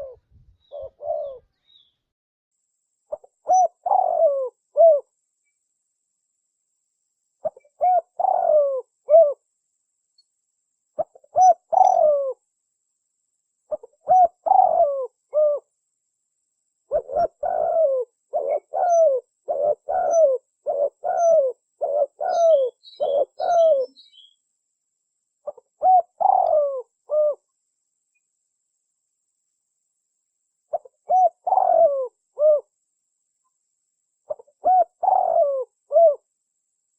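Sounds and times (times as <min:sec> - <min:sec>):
dove cooing: 0:00.0 - 0:01.5, 0:03.1 - 0:05.1, 0:07.4 - 0:09.4, 0:11.0 - 0:12.4, 0:13.7 - 0:15.7, 0:16.9 - 0:24.4, 0:25.4 - 0:27.5, 0:30.7 - 0:32.7, 0:34.3 - 0:36.3
small bird chirping: 0:00.0 - 0:02.1, 0:03.0 - 0:05.7, 0:07.4 - 0:09.4, 0:10.0 - 0:12.4, 0:13.6 - 0:15.7, 0:16.8 - 0:24.5, 0:25.3 - 0:28.4, 0:30.6 - 0:36.3.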